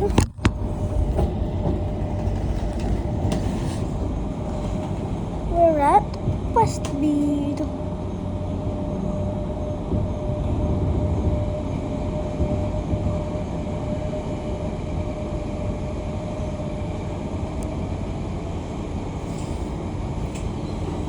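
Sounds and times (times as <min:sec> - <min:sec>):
constant humming tone: 0:00.0 - 0:21.0
tram cabin rumble: 0:00.0 - 0:21.0.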